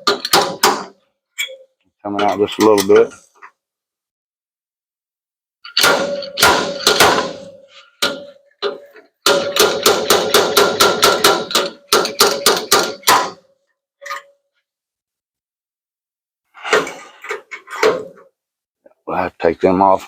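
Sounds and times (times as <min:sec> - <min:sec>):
slide hammer striking metal panel: 0:00.0 - 0:01.0, 0:05.8 - 0:13.4.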